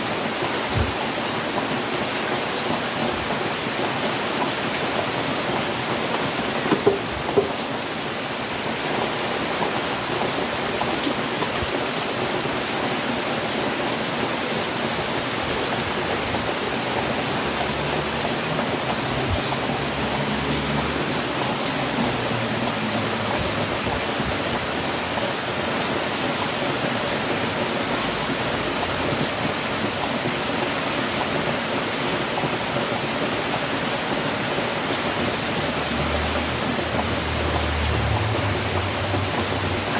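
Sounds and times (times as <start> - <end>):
rain on a roof: 0.0 - 39.9.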